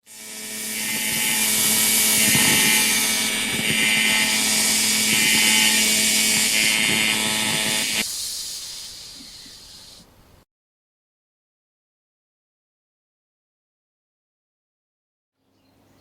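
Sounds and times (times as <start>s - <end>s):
angle grinder whining: 0.0s - 8.1s.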